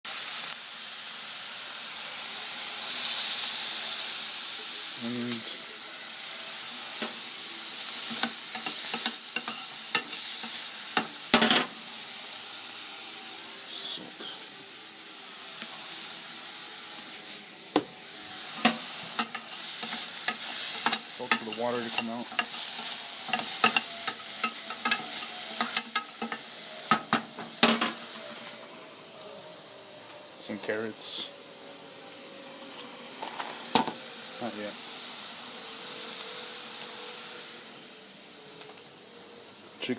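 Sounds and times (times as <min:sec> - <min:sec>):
onions sizzling in a frying pan: 0:00.1 - 0:39.9
utensil scraping a pan: 0:08.0 - 0:11.8, 0:18.4 - 0:28.0.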